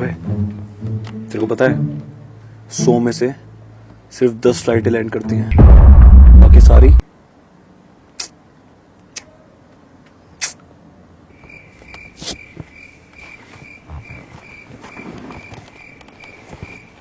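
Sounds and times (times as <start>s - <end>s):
cricket chirping: 11.3s - 17.0s.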